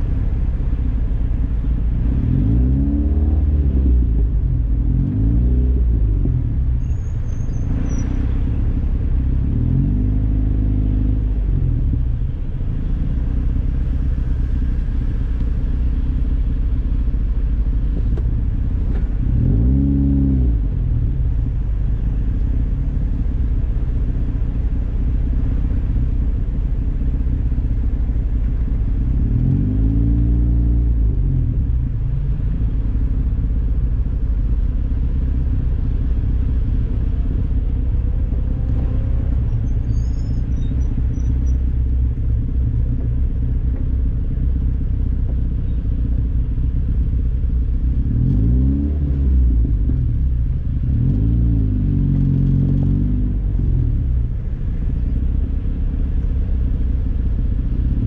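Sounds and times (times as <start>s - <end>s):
wind and road noise: 0.0s - 58.0s
car engine revving: 1.8s - 6.7s, 18.0s - 23.3s, 27.3s - 34.2s, 46.1s - 56.0s.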